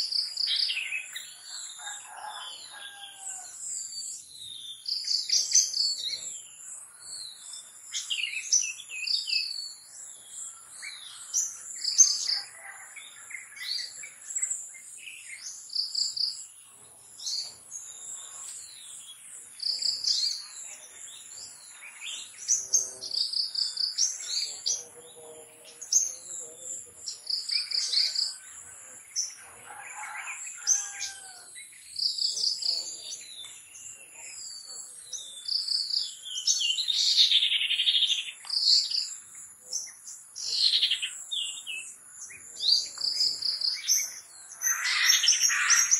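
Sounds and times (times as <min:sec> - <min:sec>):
bird singing high phrases: 0:17.3 - 0:45.9.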